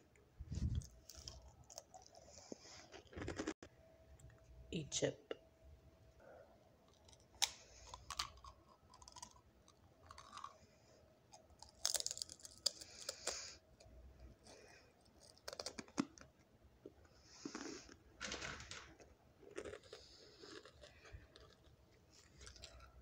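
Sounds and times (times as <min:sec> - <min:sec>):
person crunching potato chip: 0:00.7 - 0:03.5, 0:06.9 - 0:10.6, 0:11.3 - 0:13.6, 0:14.4 - 0:16.3, 0:19.4 - 0:23.0.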